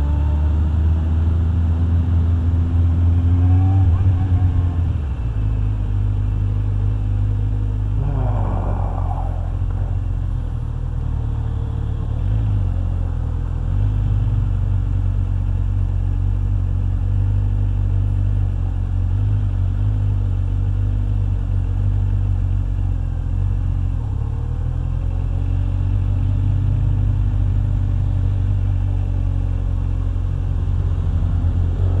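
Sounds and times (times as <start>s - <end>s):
road and wind noise: 0.0s - 32.0s
motorcycle engine cruising: 0.7s - 13.5s.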